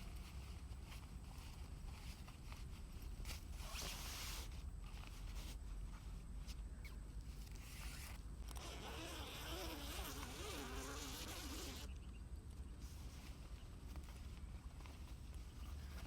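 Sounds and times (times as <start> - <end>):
flying insect buzzing: 8.5 - 11.9.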